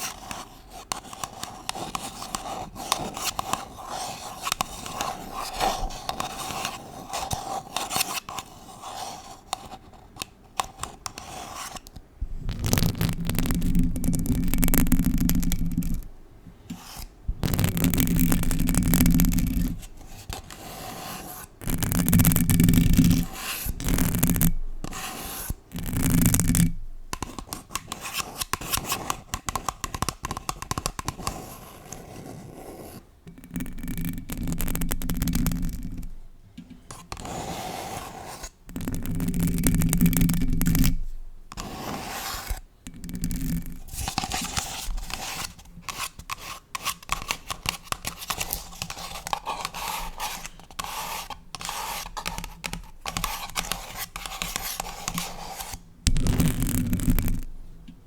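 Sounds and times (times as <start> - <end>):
nails scratching a paper cup: 0.0 - 36.2, 36.8 - 57.6
nails rubbing a microphone: 10.8 - 16.1, 16.7 - 29.7, 36.9 - 57.6.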